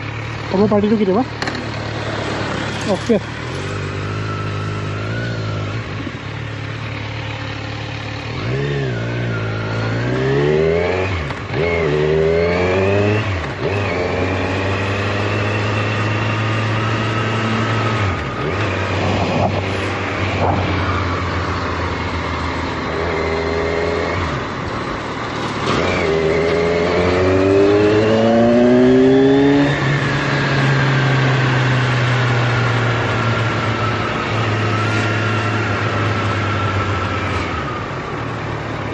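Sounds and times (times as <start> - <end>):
vehicle engine accelerating: 0.0 - 38.9.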